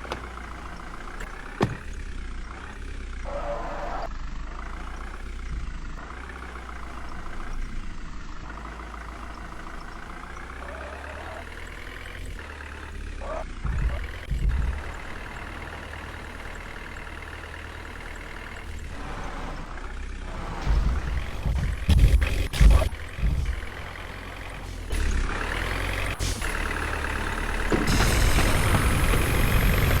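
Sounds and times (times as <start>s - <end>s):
low thumps: 0.0s - 2.1s, 13.6s - 15.5s, 20.4s - 24.0s
tractor diesel engine running: 0.0s - 30.0s.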